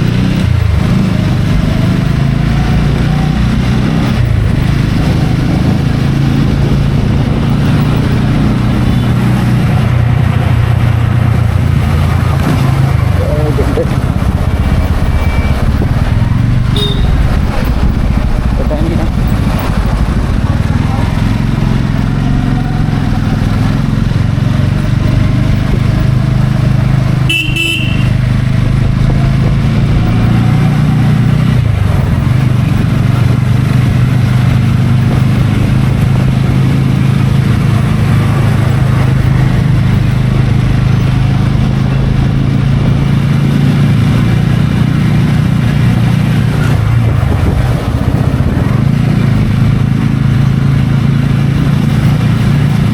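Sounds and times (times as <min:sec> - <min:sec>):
motorcycle engine running: 0:00.0 - 0:52.9
wind noise on microphone: 0:02.5 - 0:52.9
short horn beep: 0:15.1 - 0:15.7, 0:16.7 - 0:17.2, 0:27.3 - 0:28.2.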